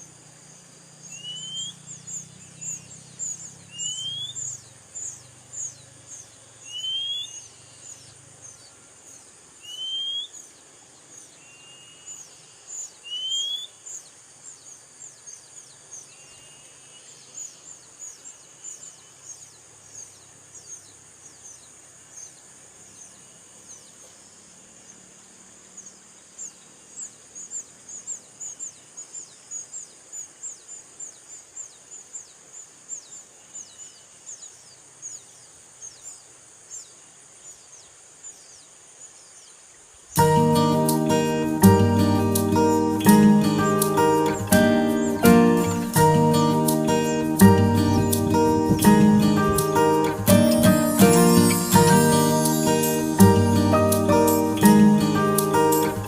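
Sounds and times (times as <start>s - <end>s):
faint high hiss: 0.0s - 56.0s
bird rising whistled call: 1.1s - 1.9s, 3.7s - 4.5s, 6.7s - 7.5s, 9.6s - 10.4s, 13.0s - 13.8s.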